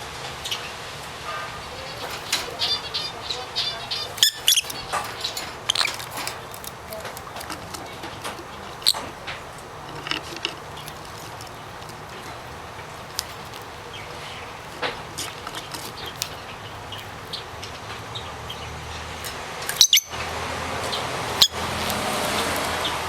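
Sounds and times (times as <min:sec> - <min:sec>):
low steady hum: 0:00.0 - 0:23.0
birds tapping and clicking: 0:00.4 - 0:23.0
lovebirds chirping: 0:00.4 - 0:23.0.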